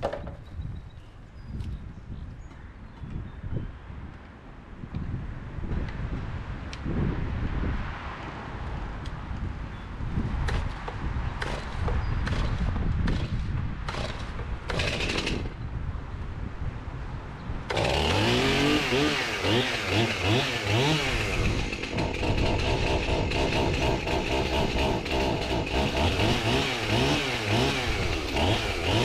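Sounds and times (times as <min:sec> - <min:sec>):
wind-like rushing noise: 0:03.2 - 0:19.3
chainsaw engine revving: 0:11.4 - 0:15.6, 0:17.7 - 0:29.0.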